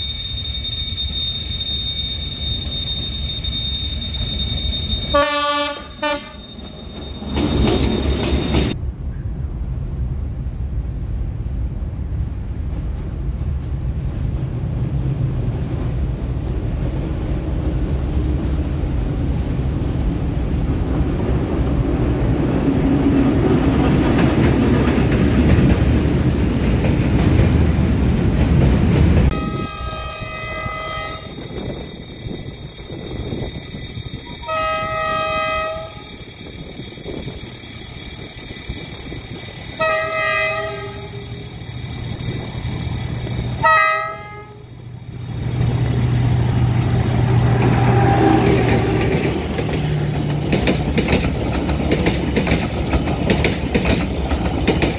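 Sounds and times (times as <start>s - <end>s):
freight wagons rumbling past: 0.9s - 10.3s, 12.2s - 54.9s
diesel locomotive horn blasts: 5.1s - 6.4s, 29.3s - 31.3s, 34.3s - 36.0s, 39.8s - 41.3s, 43.6s - 44.8s, 47.6s - 49.1s.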